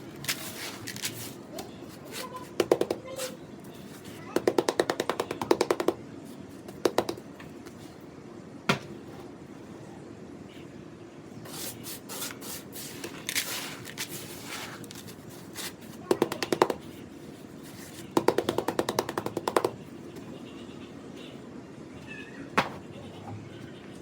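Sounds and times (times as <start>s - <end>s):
gritty scraping: 0.2s - 2.5s, 11.5s - 16.0s
rapid tapping on sand and cement: 2.0s - 3.3s, 4.3s - 6.0s, 11.5s - 17.0s, 17.7s - 19.8s.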